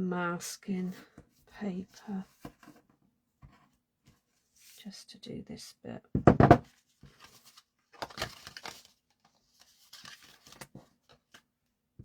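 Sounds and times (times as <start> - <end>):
paper rustling and crinkling: 6.7 - 11.5.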